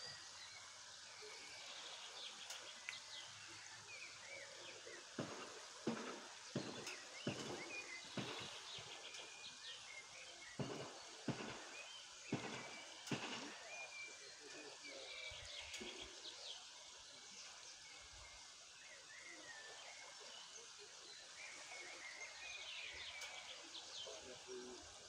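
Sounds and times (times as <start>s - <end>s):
small birds chirping: 0.0s - 25.0s
steady outdoor hiss: 0.0s - 25.0s.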